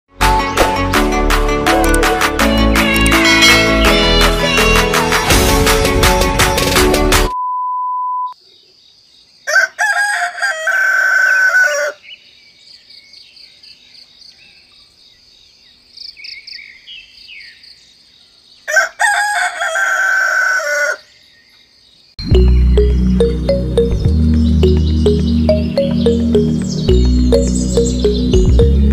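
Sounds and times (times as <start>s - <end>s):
music: 0.1s - 7.4s, 22.2s - 28.9s
electronic beep: 7.3s - 8.4s
rooster crowing: 9.4s - 12.0s, 18.7s - 21.1s
small bird chirps: 21.3s - 28.7s.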